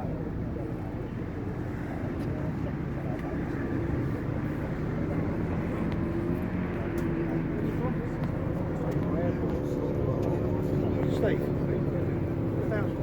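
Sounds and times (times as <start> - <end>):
faint voices: 0.0 - 13.0.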